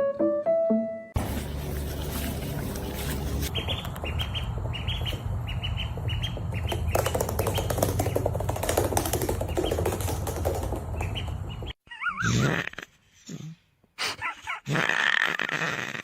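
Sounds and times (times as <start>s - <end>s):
bird chirping: 1.2s - 8.3s, 11.0s - 11.8s.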